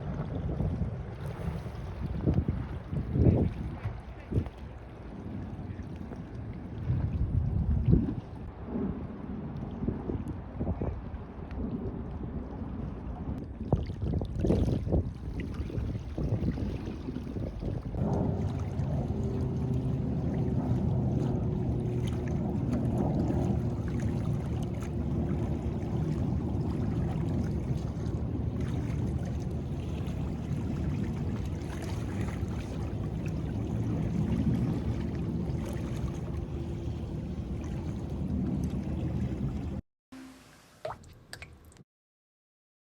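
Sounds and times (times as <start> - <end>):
rough water rushing: 13.8 - 39.8
boat engine humming: 16.8 - 40.7.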